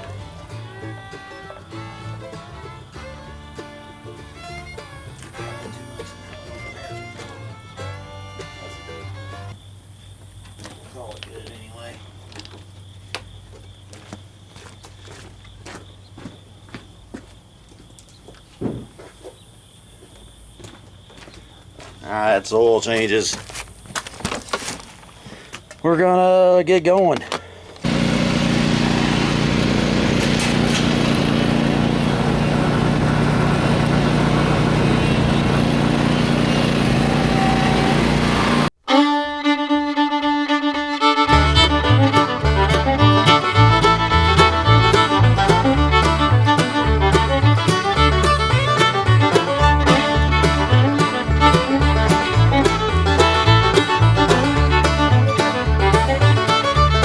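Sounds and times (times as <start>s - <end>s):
fiddle-led bluegrass music: 0.0s - 9.6s, 27.9s - 57.0s
lawn mower engine running: 0.0s - 9.6s, 27.8s - 38.8s, 40.6s - 57.0s.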